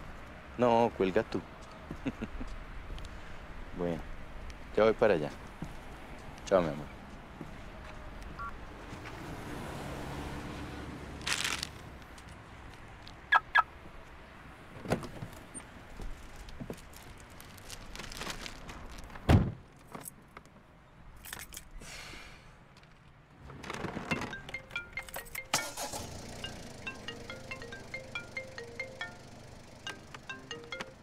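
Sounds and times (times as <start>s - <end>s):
handling knocks and rustles: 22.8s - 25.4s.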